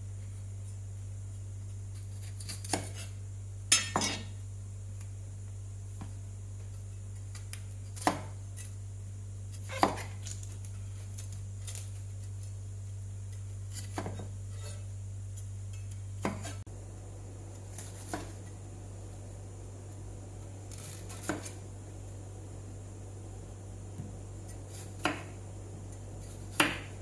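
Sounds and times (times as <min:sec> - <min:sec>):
steady low hum: 0:00.0 - 0:27.0
kitchen utensils knocking: 0:03.7 - 0:04.3.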